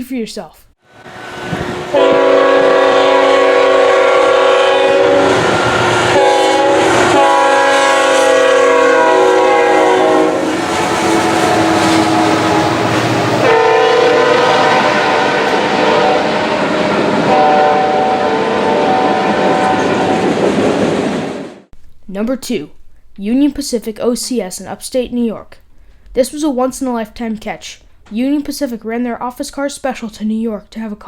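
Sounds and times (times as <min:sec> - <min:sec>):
locomotive air horn blasts: 0:00.9 - 0:20.2.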